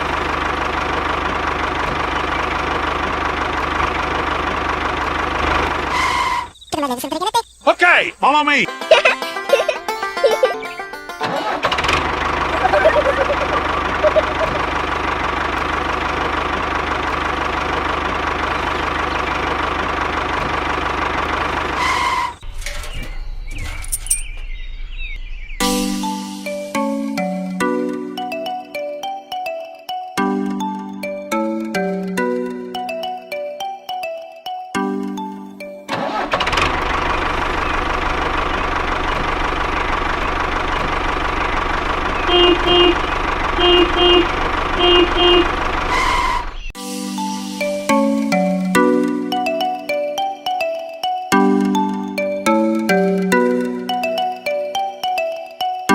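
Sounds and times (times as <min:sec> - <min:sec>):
tractor engine running: 0:00.0 - 0:06.7, 0:07.6 - 0:25.2, 0:35.9 - 0:46.8
horn beeps: 0:12.5 - 0:14.8, 0:42.2 - 0:46.7.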